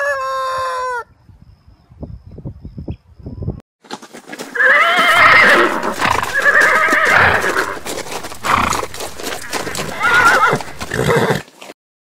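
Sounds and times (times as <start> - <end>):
horse whinnying: 4.5 - 11.5.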